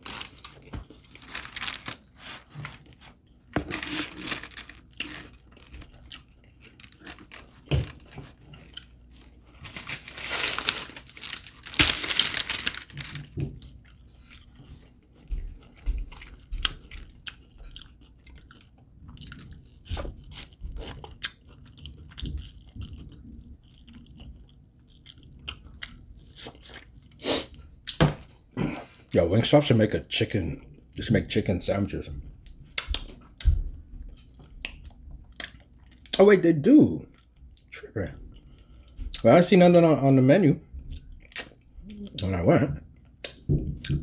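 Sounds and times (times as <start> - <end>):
chewing and crunching: 0.0 - 10.1, 10.8 - 28.0, 32.2 - 36.2.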